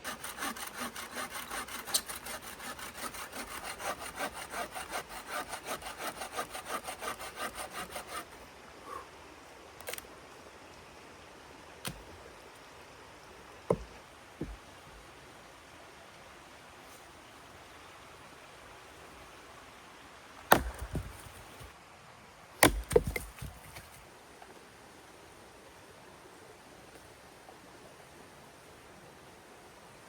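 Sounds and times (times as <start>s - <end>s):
hand saw cutting wood: 0.0s - 8.4s, 20.5s - 21.7s, 22.6s - 24.0s.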